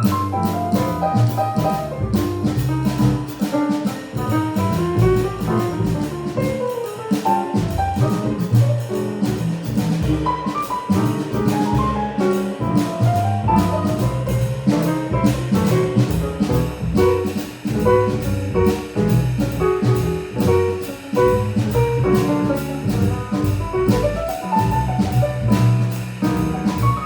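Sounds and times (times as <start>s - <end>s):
drum kit cymbal beat: 0.0s - 27.0s
jazz horn lines: 0.0s - 27.0s
piano: 0.0s - 27.0s
walking double bass: 0.0s - 27.0s.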